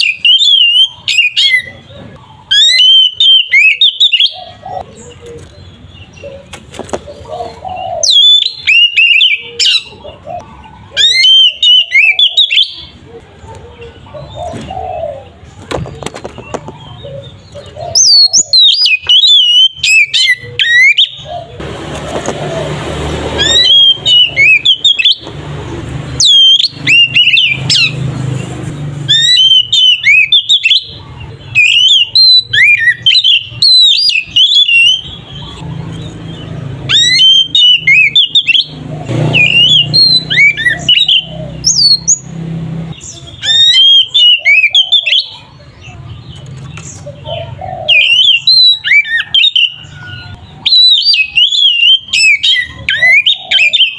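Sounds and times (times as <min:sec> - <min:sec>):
bird singing whistles and chirps: 0:00.0 - 0:06.5, 0:07.7 - 0:10.0, 0:17.2 - 0:21.4, 0:23.4 - 0:25.3, 0:26.1 - 0:28.0, 0:29.0 - 0:35.6, 0:36.3 - 0:42.3, 0:42.9 - 0:45.5, 0:47.8 - 0:53.9.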